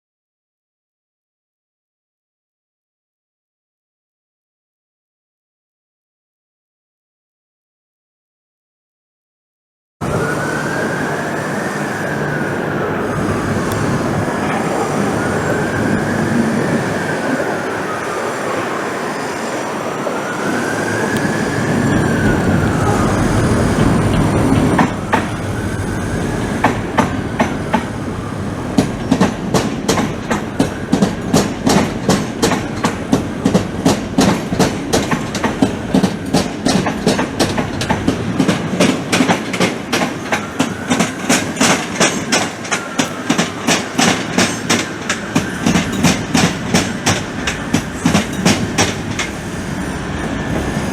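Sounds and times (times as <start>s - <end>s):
train running on rails: 10.0s - 50.9s
wheels clickety-clack: 21.0s - 28.0s, 28.8s - 50.9s.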